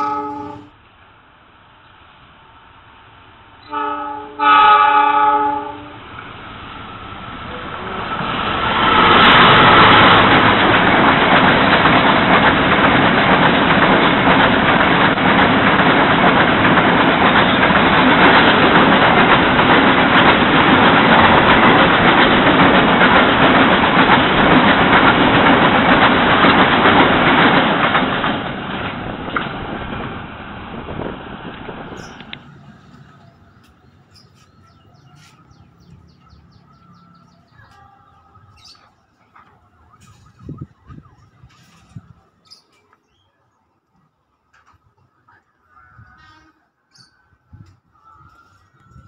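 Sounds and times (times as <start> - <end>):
diesel locomotive horn: 0.0 - 0.8, 3.6 - 6.1, 8.8 - 9.4, 45.7 - 46.9
freight train wheels rumbling: 0.0 - 49.0.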